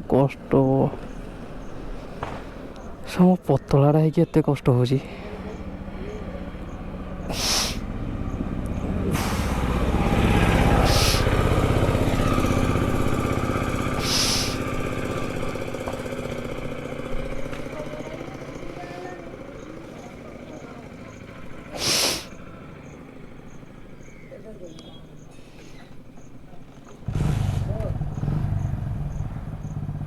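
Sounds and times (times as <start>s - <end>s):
vehicle engine passing by: 0.0s - 3.2s, 5.0s - 25.4s, 26.9s - 30.0s
short hisses: 7.3s - 7.9s, 9.1s - 9.8s, 10.7s - 11.4s, 14.0s - 14.8s, 21.7s - 22.4s.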